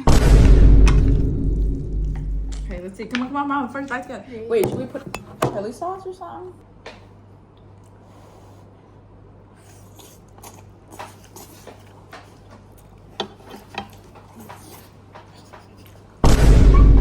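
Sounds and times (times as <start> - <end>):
cutlery clinking on dishes: 13.2 - 16.0.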